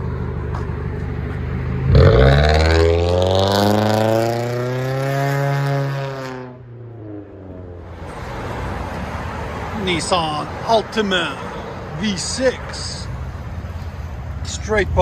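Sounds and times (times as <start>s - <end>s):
car engine idling: 0.0s - 2.4s, 6.6s - 15.0s
car engine revving: 0.0s - 10.1s.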